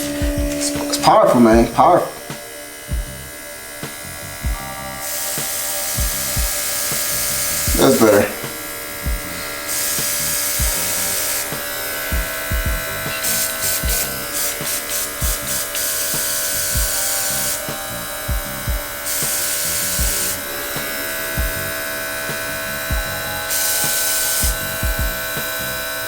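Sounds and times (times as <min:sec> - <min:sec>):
dull low thumps: 0:00.0 - 0:01.9, 0:02.9 - 0:03.3, 0:04.0 - 0:05.0, 0:06.0 - 0:06.6, 0:09.0 - 0:09.5, 0:10.6 - 0:11.0, 0:12.1 - 0:13.1, 0:13.8 - 0:14.2, 0:15.2 - 0:15.6, 0:16.8 - 0:17.0, 0:18.3 - 0:18.9, 0:20.0 - 0:20.2, 0:21.4 - 0:21.8, 0:22.8 - 0:23.3, 0:24.4 - 0:25.4
airbrush hissing: 0:00.0 - 0:02.8, 0:05.0 - 0:26.0
air compressor running: 0:00.0 - 0:26.0.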